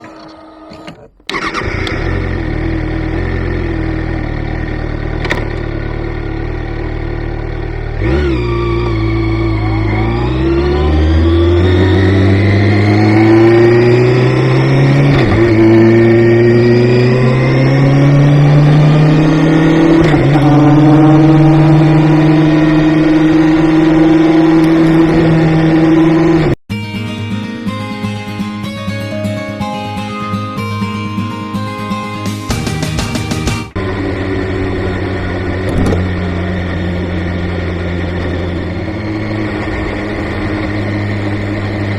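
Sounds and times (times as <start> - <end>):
motorcycle engine starting and idling: 0.0 - 26.6, 33.4 - 41.9
motorcycle engine revving: 1.2 - 26.6, 33.7 - 41.9.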